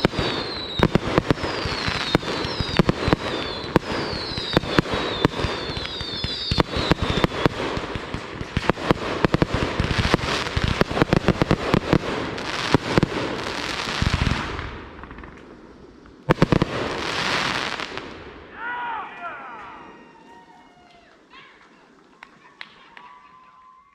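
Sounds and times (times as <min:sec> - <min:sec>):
falling firework whistles: 0:00.0 - 0:07.8
sharp firework bangs: 0:00.0 - 0:15.3
firework hiss: 0:00.0 - 0:18.3
fireworks popping and crackling: 0:00.0 - 0:18.3.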